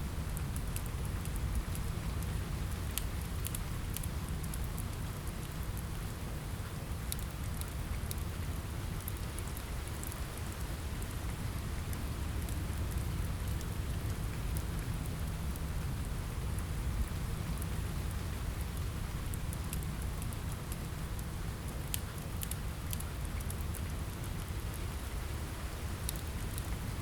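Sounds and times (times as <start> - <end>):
steady rain: 0.0 - 27.0
wood fire crackling: 0.2 - 27.0.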